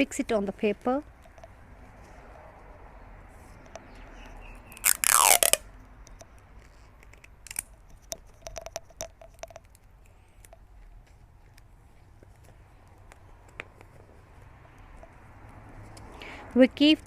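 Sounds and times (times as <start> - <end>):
sticky tape ripping off roll: 4.7 - 5.6
tape clicks and crinkles: 4.7 - 16.1.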